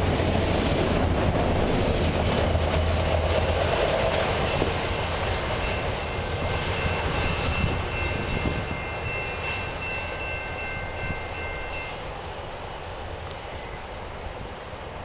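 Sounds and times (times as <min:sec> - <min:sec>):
freight wheels rumbling on track: 0:00.0 - 0:15.0
faint high ringing tone: 0:05.6 - 0:12.1, 0:13.4 - 0:14.0.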